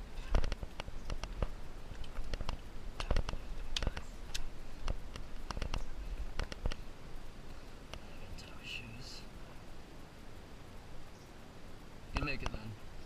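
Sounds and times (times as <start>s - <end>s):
clicks and knocks on rock: 0.2s - 6.8s.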